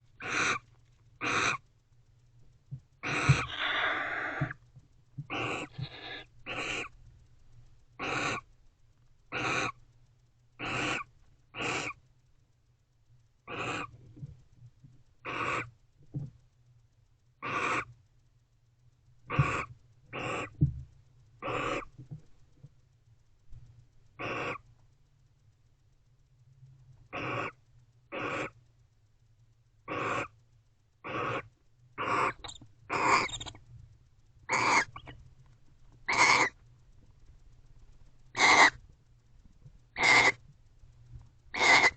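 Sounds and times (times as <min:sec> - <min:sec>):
owl hissing: 0:00.2 - 0:00.6, 0:01.2 - 0:01.6, 0:03.0 - 0:04.6, 0:05.3 - 0:07.0, 0:08.0 - 0:08.5, 0:09.3 - 0:09.8, 0:10.6 - 0:12.0, 0:13.5 - 0:13.9, 0:15.2 - 0:15.7, 0:17.4 - 0:17.9, 0:19.3 - 0:20.6, 0:21.4 - 0:21.9, 0:24.2 - 0:24.6, 0:27.1 - 0:28.6, 0:29.9 - 0:30.3, 0:31.0 - 0:33.6, 0:34.5 - 0:35.2, 0:36.1 - 0:36.6, 0:38.4 - 0:38.8, 0:40.0 - 0:40.4, 0:41.5 - 0:41.9
owls raspy twittering calls: 0:00.2 - 0:00.6, 0:01.2 - 0:01.6, 0:03.0 - 0:04.6, 0:05.3 - 0:06.9, 0:08.0 - 0:08.5, 0:09.3 - 0:09.8, 0:10.6 - 0:12.0, 0:13.5 - 0:13.9, 0:15.2 - 0:15.7, 0:17.4 - 0:17.9, 0:19.3 - 0:20.6, 0:21.4 - 0:21.9, 0:24.2 - 0:24.6, 0:27.1 - 0:28.6, 0:29.9 - 0:30.3, 0:31.0 - 0:33.6, 0:34.5 - 0:35.2, 0:36.1 - 0:36.6, 0:38.4 - 0:38.8, 0:40.0 - 0:40.4, 0:41.5 - 0:41.9.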